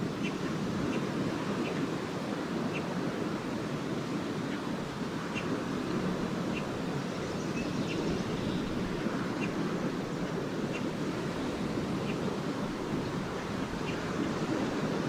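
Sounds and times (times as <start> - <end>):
lake surf washing on beach: 0.0 - 15.0
wind on microphone: 0.0 - 15.0
swallows chirping: 6.6 - 9.6.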